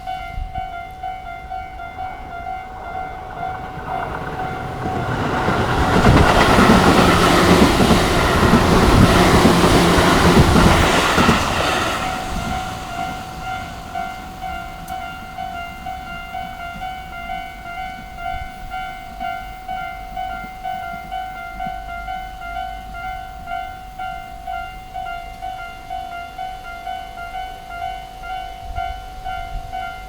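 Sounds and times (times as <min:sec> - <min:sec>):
wheels clacking over rail joints: 0:00.0 - 0:18.2
electric train passing: 0:00.0 - 0:30.0
level crossing warning bells: 0:00.0 - 0:30.0.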